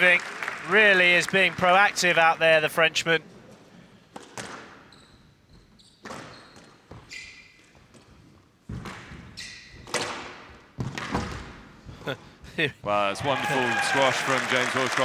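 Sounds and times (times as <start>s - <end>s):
shoes squeaking on court floor: 3.4s - 11.6s
squash ball knocks: 9.9s - 11.6s.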